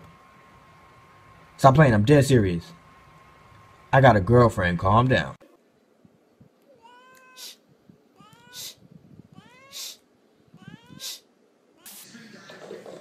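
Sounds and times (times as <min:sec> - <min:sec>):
cat meowing: 0:06.7 - 0:07.6, 0:08.2 - 0:11.2
cat hissing: 0:06.7 - 0:12.4.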